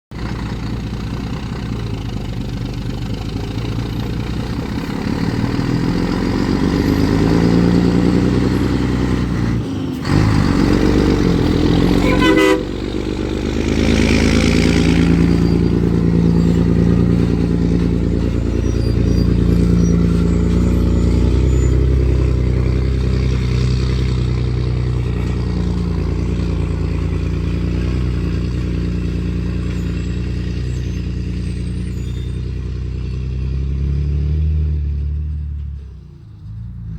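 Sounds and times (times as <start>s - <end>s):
truck diesel engine pulling away: 0.1s - 36.9s.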